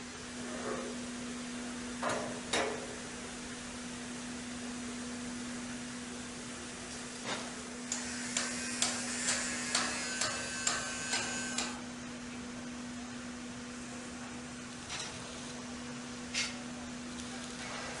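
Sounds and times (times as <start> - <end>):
machine hum: 7.6 - 12.6.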